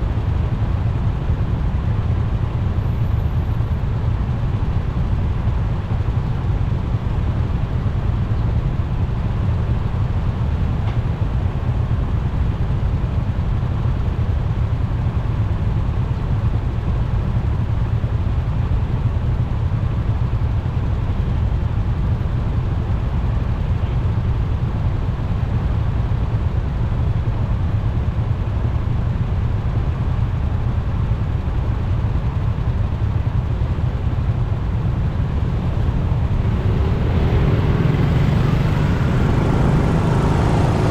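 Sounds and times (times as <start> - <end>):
motorcycle engine: 32.4 - 40.9.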